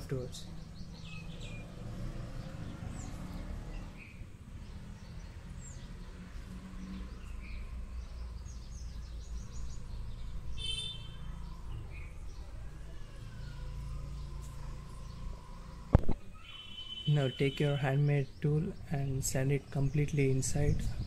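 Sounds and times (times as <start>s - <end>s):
small bird chirps: 0.1s - 6.0s, 6.8s - 17.6s
high bird call: 16.4s - 17.5s.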